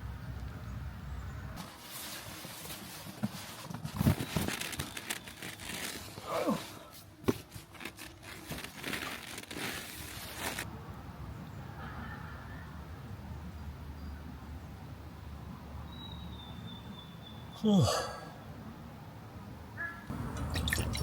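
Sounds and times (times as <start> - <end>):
crinkling and rustling: 1.6 - 10.7.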